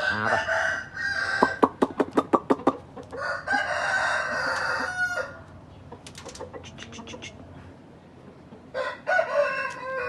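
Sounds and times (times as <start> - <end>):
chickens clucking: 0.0 - 10.0
chicken long drawn-out call: 3.2 - 5.5.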